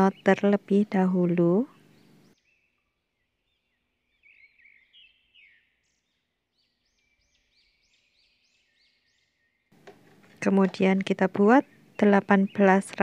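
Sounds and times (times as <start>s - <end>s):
faint bird chirps: 1.3s - 9.7s.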